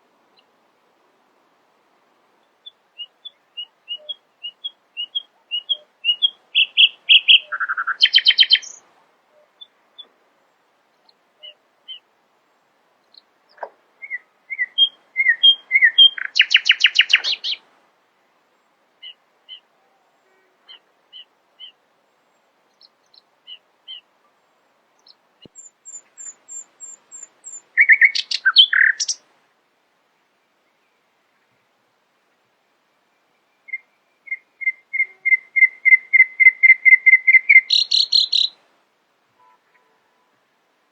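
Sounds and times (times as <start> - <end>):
songbird singing: 0.0 - 40.9
soft paired chirps: 2.6 - 10.2, 13.1 - 17.6, 25.0 - 29.2, 33.2 - 38.6
fast rattling bird trill: 34.3 - 38.5.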